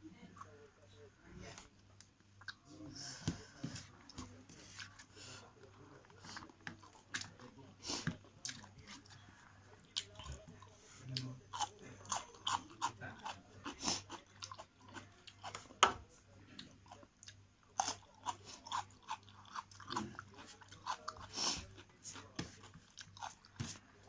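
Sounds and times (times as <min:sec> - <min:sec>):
person chewing food: 0:05.6 - 0:15.8, 0:16.5 - 0:23.9.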